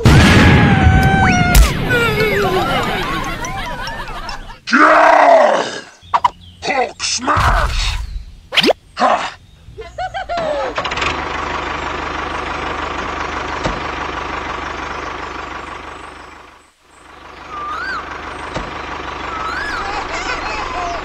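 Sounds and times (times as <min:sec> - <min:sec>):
whistle-like chirp: 0:17.5 - 0:18.1, 0:19.3 - 0:19.8.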